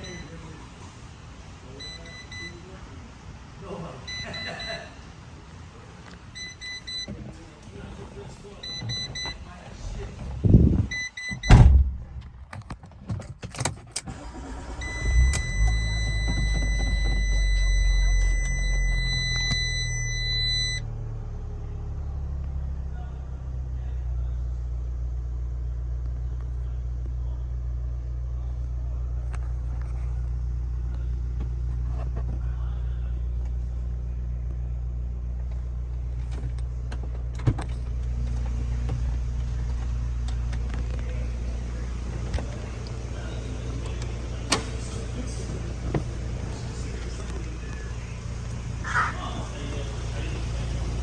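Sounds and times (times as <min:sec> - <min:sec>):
car engine idling: 0:00.0 - 0:51.0
steady high beep: 0:14.8 - 0:20.8.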